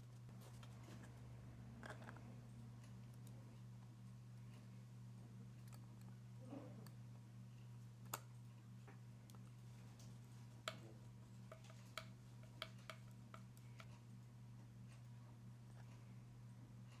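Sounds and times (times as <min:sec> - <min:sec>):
low steady hum: 0:00.0 - 0:17.0
faint clicks and taps of parts: 0:08.1 - 0:14.1.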